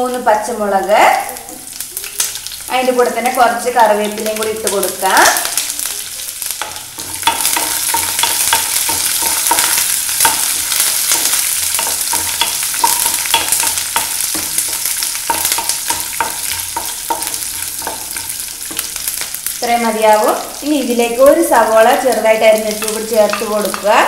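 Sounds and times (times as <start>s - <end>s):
spices sizzling in hot oil: 0.0s - 24.0s
spatula scraping and knocking pan: 6.5s - 19.6s, 22.4s - 24.0s.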